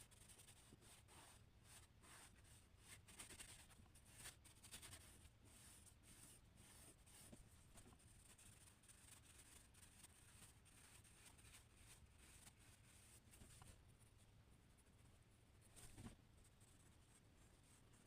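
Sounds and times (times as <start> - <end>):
drawing tool scratching paper: 0.1 - 13.7.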